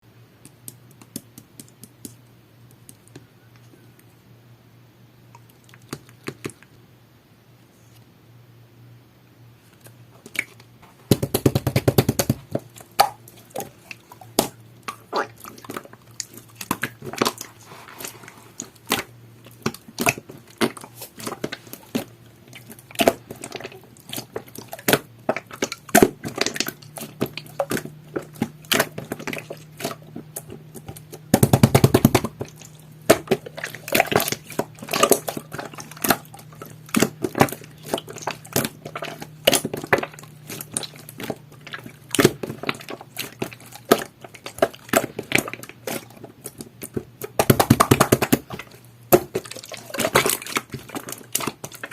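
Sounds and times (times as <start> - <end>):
slime crackling: 11.3 - 51.9
slime clicking and popping: 36.9 - 51.9.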